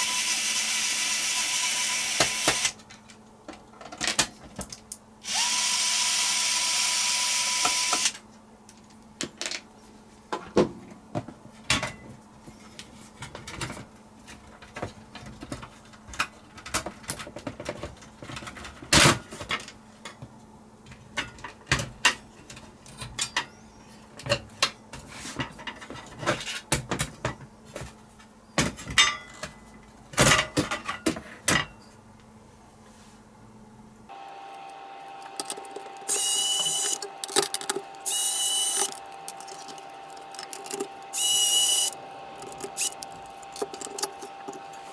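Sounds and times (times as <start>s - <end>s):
power tool motor whining: 0.0s - 2.8s, 5.2s - 8.2s, 34.1s - 44.9s
tools clicking and knocking: 35.2s - 44.9s.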